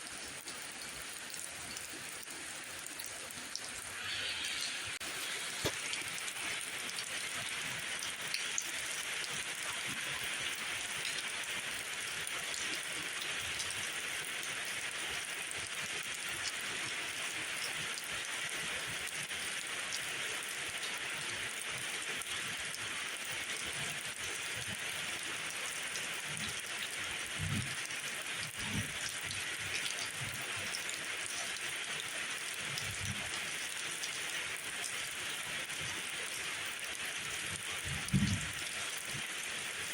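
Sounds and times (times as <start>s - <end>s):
rain hissing: 0.1s - 11.8s, 37.2s - 39.9s
raindrop ticks: 36.8s - 39.2s.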